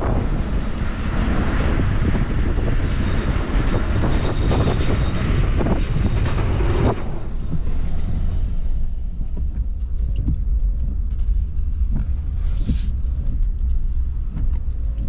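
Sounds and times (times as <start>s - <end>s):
vehicle low rumble: 0.0s - 15.0s
road noise hiss: 11.0s - 15.0s.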